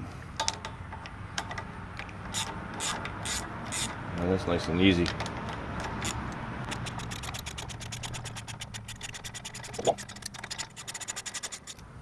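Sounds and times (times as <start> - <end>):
ratchet wrench clicking: 2.3 - 4.0, 5.2 - 11.8.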